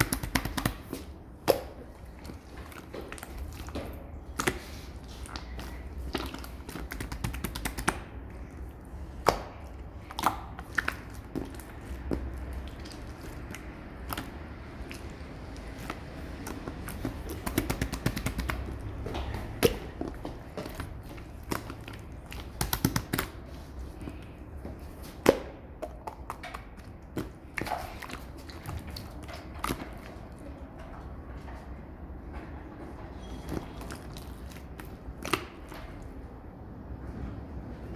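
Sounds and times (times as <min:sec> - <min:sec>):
slime clicking and popping: 0:00.0 - 0:01.9, 0:05.2 - 0:08.2, 0:09.2 - 0:23.5.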